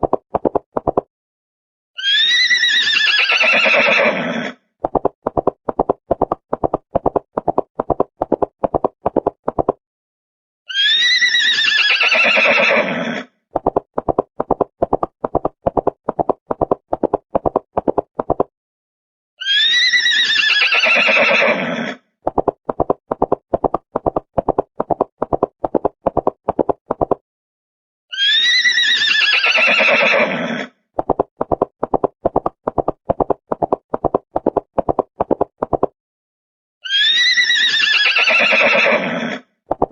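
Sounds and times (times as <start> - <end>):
horse neighing: 2.0 - 4.6, 10.7 - 13.3, 19.4 - 22.0, 28.2 - 30.7, 36.9 - 39.4
horse hoofbeats clip-clopping: 31.0 - 35.9.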